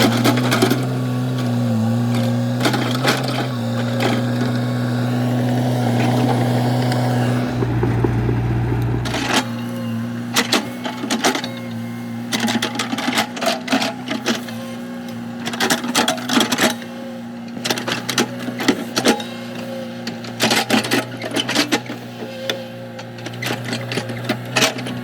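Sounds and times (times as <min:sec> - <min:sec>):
excavator diesel engine running: 0:00.0 - 0:09.7
digging clattering and knocking: 0:07.4 - 0:09.4.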